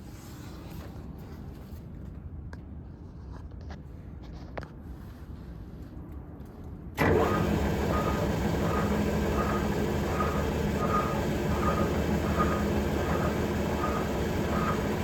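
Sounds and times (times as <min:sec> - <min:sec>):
faint whine: 0:07.0 - 0:15.0
lathe running: 0:07.0 - 0:15.0.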